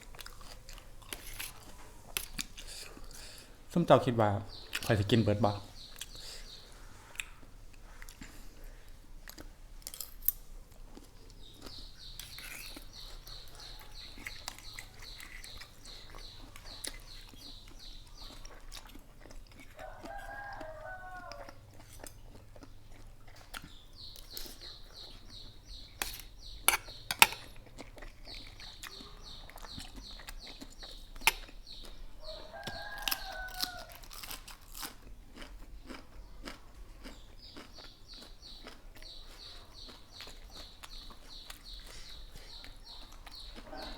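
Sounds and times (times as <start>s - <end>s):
crunching and chewing food: 0.0s - 43.9s
rooster crowing: 19.8s - 21.7s, 32.3s - 34.0s, 43.6s - 43.9s.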